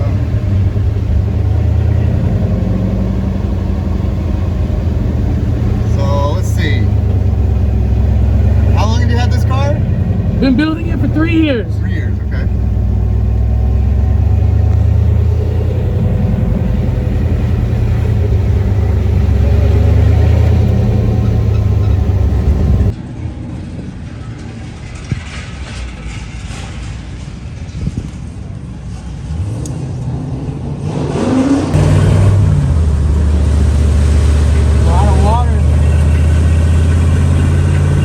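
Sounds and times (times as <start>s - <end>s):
car engine running under load: 0.0s - 22.9s, 31.7s - 38.0s.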